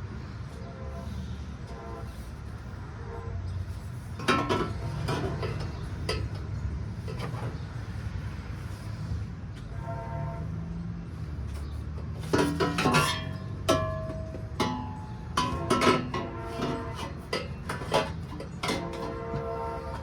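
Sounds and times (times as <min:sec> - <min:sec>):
metal clanking and ringing: 0:12.2 - 0:20.0.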